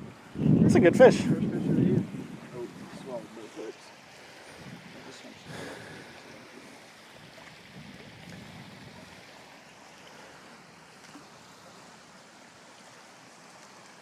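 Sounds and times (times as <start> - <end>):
faint outdoor hiss: 0.0 - 14.0.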